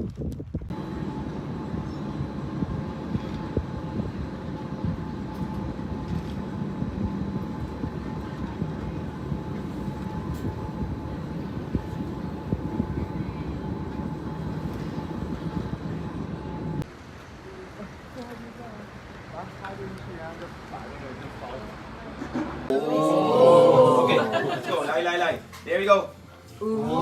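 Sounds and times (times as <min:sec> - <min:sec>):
train rumbling: 0:00.4 - 0:22.7
faint steady whine: 0:00.7 - 0:19.1.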